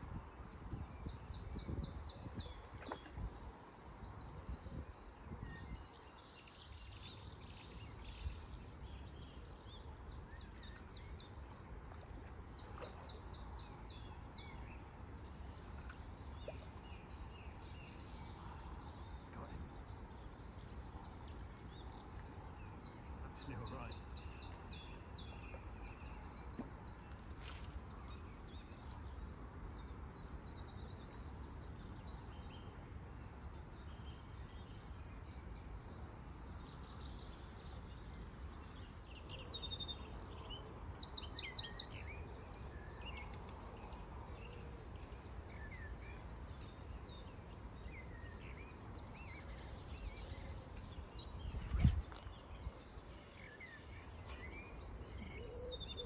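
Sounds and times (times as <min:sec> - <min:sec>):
low wind rumble on microphone: 0:00.0 - 0:15.8, 0:41.9 - 0:56.0
small birds chirping: 0:00.0 - 0:44.0, 0:45.5 - 0:56.0.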